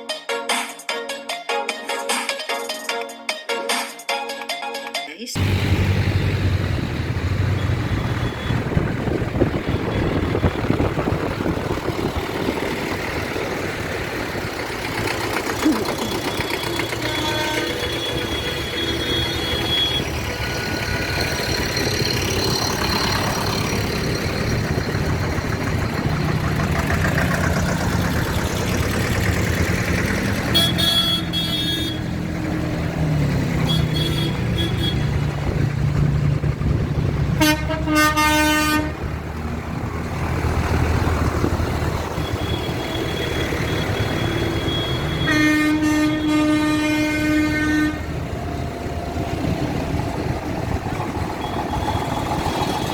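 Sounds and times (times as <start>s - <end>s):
tractor engines running: 5.4s - 52.9s
horns honking: 7.0s - 11.2s, 15.2s - 23.7s, 30.1s - 32.6s, 33.4s - 35.4s, 37.4s - 39.1s, 42.0s - 48.3s, 51.2s - 52.9s.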